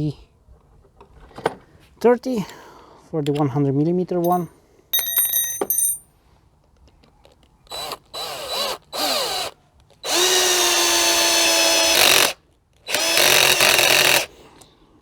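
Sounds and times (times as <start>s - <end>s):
cordless drill motor: 7.7s - 14.3s.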